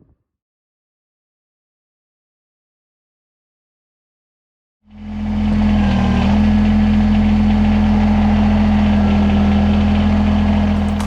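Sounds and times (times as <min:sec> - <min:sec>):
diesel tractor engine droning: 0:04.9 - 0:11.0.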